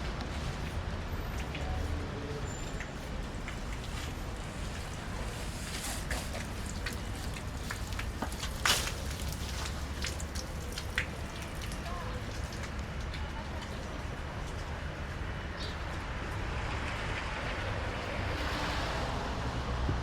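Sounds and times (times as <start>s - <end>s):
low street rumble: 0.0s - 20.0s.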